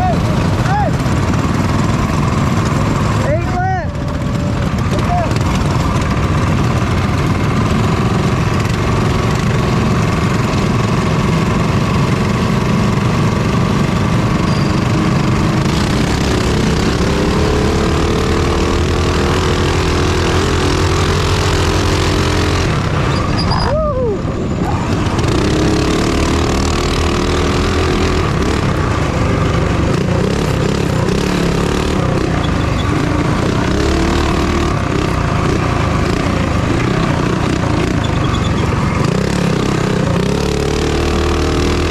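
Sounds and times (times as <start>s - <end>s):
minibike engine revving: 0.0s - 41.9s.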